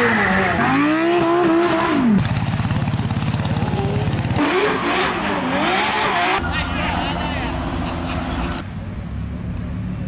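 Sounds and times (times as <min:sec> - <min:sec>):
racing engine revving: 0:00.0 - 0:06.4.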